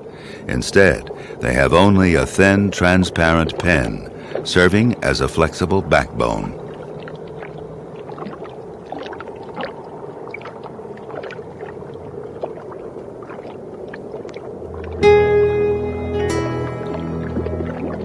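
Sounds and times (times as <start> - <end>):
underwater ambience with clicks: 6.6 - 15.0
music with sustained notes: 14.7 - 18.0.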